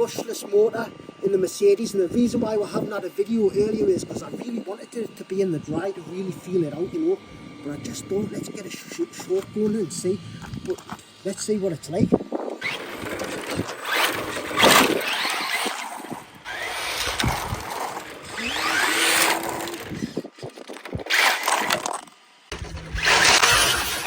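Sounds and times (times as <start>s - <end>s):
electric motor whine: 0.0s - 24.0s
tyres rushing on ground: 12.6s - 20.2s.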